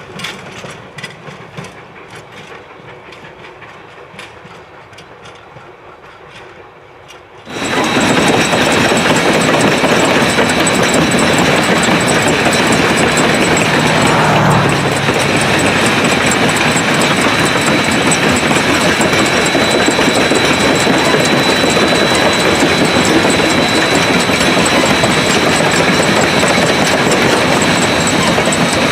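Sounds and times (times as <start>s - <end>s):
steam train running: 0.0s - 28.9s
train wheels clicking over rails: 0.0s - 28.9s
loud steady rushing noise: 7.5s - 28.9s.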